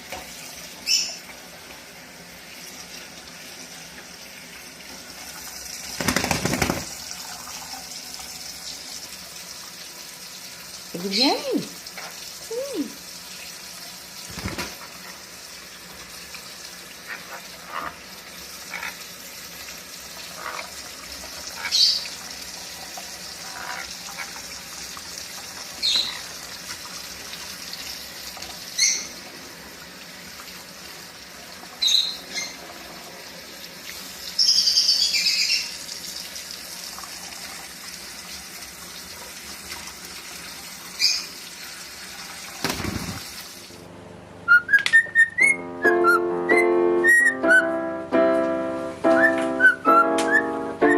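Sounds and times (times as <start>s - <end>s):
parrot chirping: 0.8s - 1.2s, 21.6s - 22.1s, 25.8s - 26.3s, 28.7s - 29.2s, 31.8s - 32.6s, 34.4s - 35.8s, 44.5s - 47.6s.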